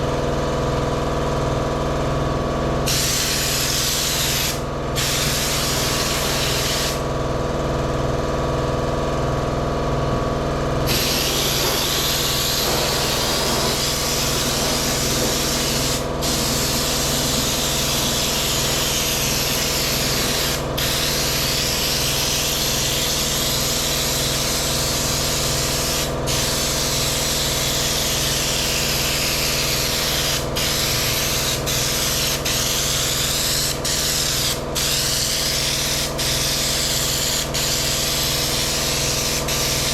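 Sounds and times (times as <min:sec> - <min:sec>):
air compressor hum: 0:00.0 - 0:39.9
spray gun hissing: 0:02.9 - 0:07.0, 0:10.9 - 0:39.9.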